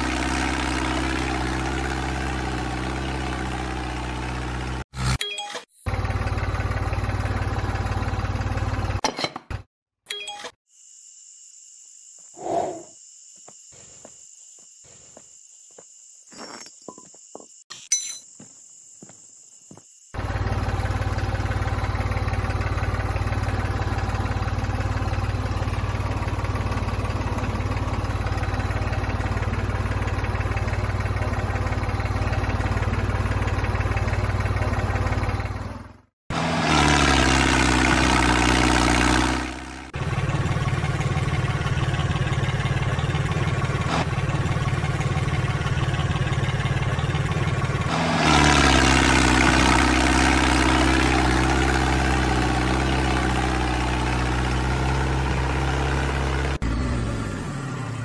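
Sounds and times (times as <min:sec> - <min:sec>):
different engine sound: 0:00.0 - 0:05.2, 0:05.8 - 0:09.6, 0:20.1 - 0:58.0
engine running with deep hum: 0:00.0 - 0:05.2, 0:05.9 - 0:09.0, 0:20.0 - 0:58.0.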